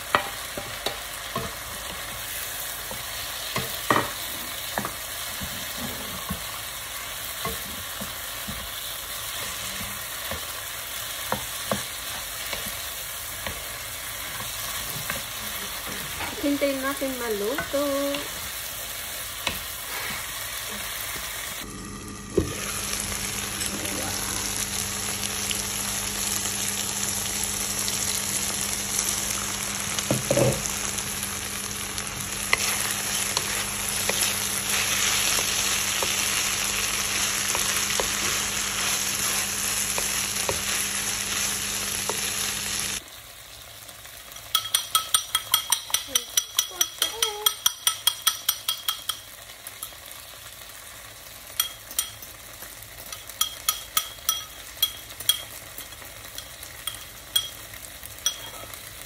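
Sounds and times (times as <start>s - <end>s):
stir-fry sizzling in a wok: 0.0s - 59.0s
spoon beating eggs in bowl: 44.4s - 49.9s, 53.1s - 57.6s, 58.2s - 58.6s
spatula knocking against pan: 44.5s - 49.2s.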